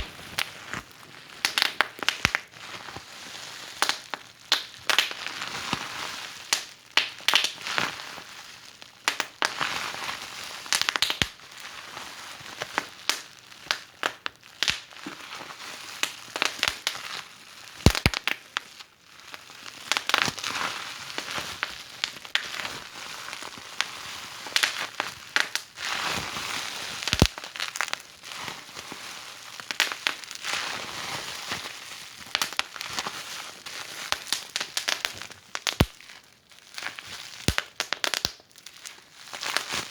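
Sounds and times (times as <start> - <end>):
wood fire crackling: 0.0 - 2.4, 17.8 - 18.4, 27.0 - 28.0, 34.1 - 36.1, 36.8 - 38.4.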